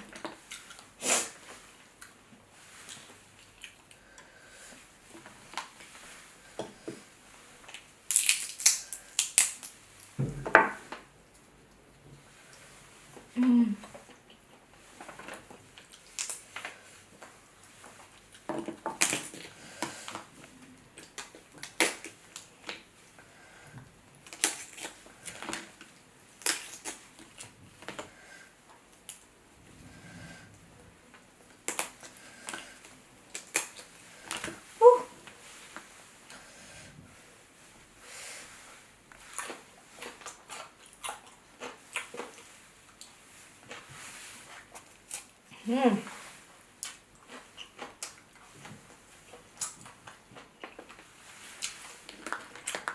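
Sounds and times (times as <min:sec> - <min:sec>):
crab shell cracking and crunching: 0:07.7 - 0:10.1, 0:15.8 - 0:16.7, 0:21.0 - 0:22.8, 0:24.2 - 0:28.0, 0:31.5 - 0:34.5, 0:52.0 - 0:52.9
crab shells cracking: 0:07.8 - 0:09.8, 0:16.0 - 0:16.4, 0:24.2 - 0:25.7, 0:26.4 - 0:27.4, 0:33.3 - 0:34.5.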